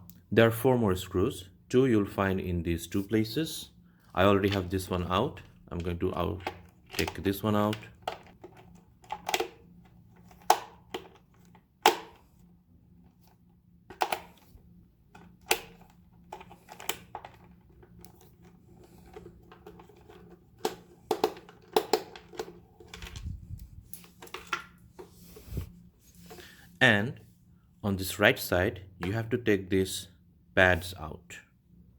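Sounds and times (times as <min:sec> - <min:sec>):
screwdriver clicking on plastic: 0:05.8 - 0:09.6.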